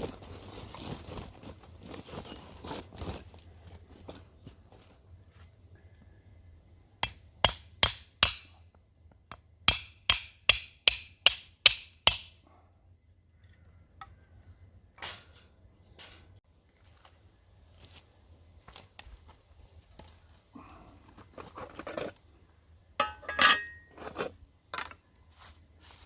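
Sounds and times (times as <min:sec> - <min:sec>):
hammer strikes with metallic ring: 0:09.7 - 0:12.4.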